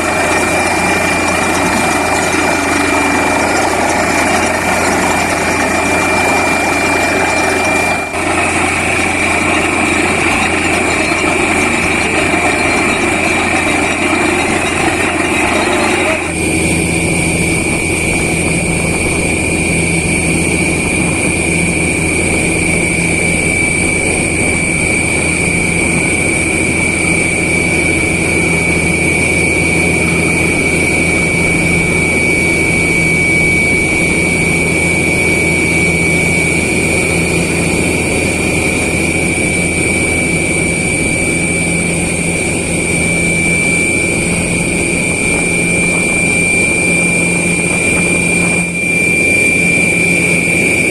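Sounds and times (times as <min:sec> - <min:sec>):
drilling rig running: 0:00.0 - 0:50.9.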